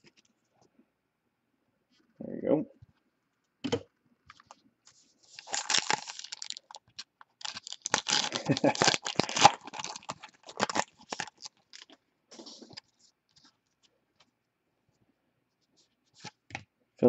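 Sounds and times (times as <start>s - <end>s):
cards rustling: 4.3s - 13.5s.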